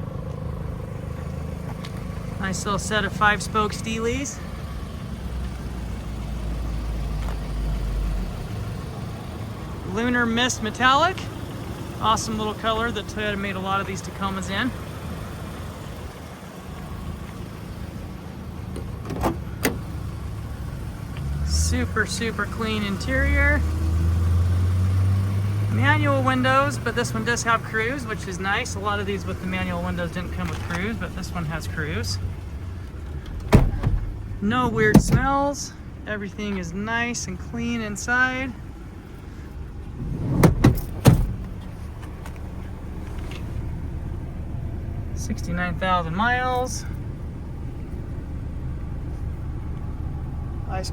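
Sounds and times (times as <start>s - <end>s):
low engine hum: 0.0s - 50.9s
low rumble: 38.6s - 45.0s.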